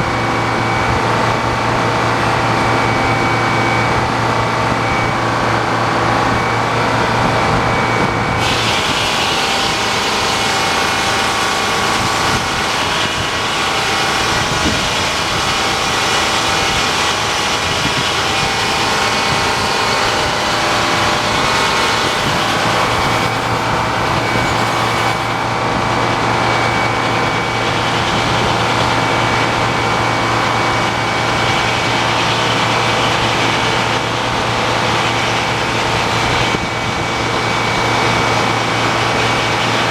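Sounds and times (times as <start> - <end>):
sawmill mechanical drone: 0.0 - 39.9
saw cutting hiss: 8.4 - 25.6.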